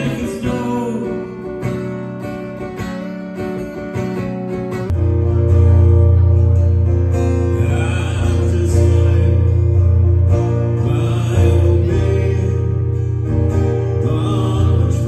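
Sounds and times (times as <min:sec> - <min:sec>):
strummed acoustic guitar: 0:00.0 - 0:15.0
held bass notes: 0:03.5 - 0:15.0.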